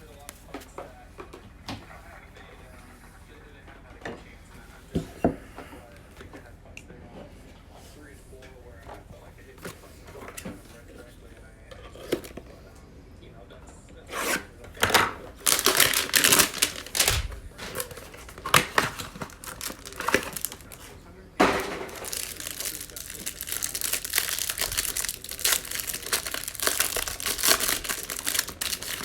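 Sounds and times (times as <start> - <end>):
cardboard tearing: 14.1 - 29.0
plastic wrap crinkling: 14.8 - 29.0.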